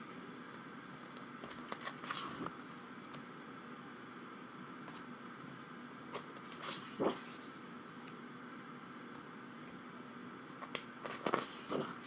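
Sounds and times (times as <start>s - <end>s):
paper rustle: 10.6s - 12.0s.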